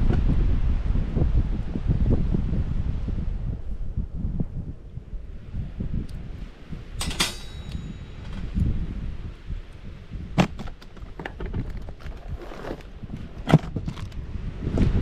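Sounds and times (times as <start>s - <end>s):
wind rumbling on microphone: 0.0s - 15.0s
sharp knocks and clinks: 7.0s - 8.6s.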